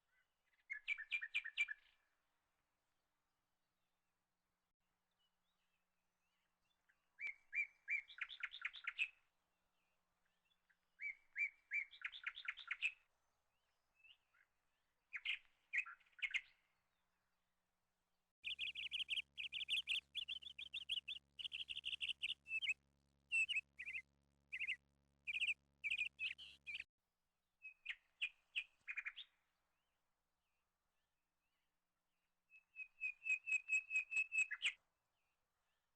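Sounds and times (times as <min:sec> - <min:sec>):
songbird chirping: 0:00.1 - 0:02.3, 0:05.1 - 0:17.4, 0:18.4 - 0:26.9, 0:27.6 - 0:31.7, 0:32.5 - 0:35.9.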